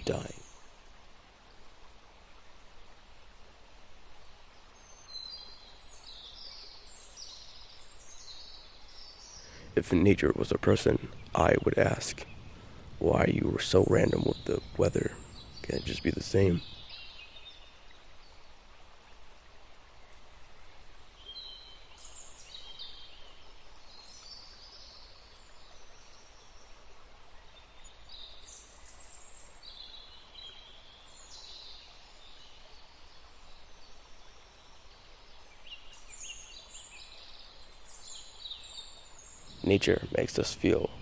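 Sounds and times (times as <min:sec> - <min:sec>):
small birds chirping: 0:00.0 - 0:00.5, 0:04.8 - 0:17.6, 0:35.6 - 0:41.0
low background hum: 0:09.5 - 0:16.8, 0:39.5 - 0:41.0.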